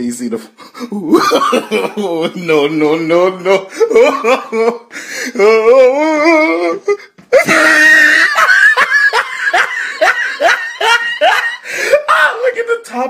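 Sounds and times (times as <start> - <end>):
hysterical laughter: 0.8 - 2.5, 3.4 - 12.2.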